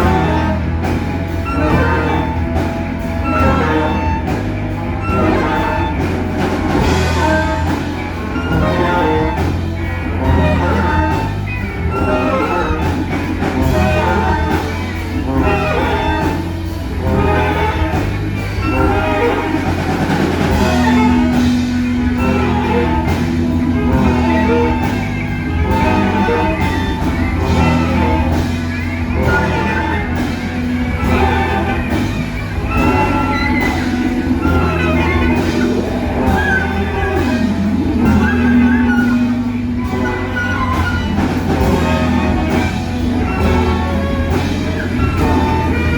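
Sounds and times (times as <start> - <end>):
free improvised ensemble music: 0.0 - 45.9
steady low bass: 0.0 - 45.9.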